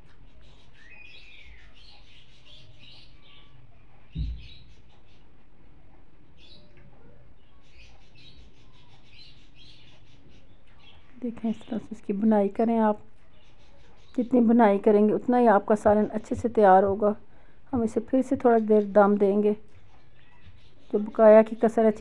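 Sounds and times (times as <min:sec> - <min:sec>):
small birds chirping: 0:00.0 - 0:22.0
low thump: 0:04.1 - 0:04.6.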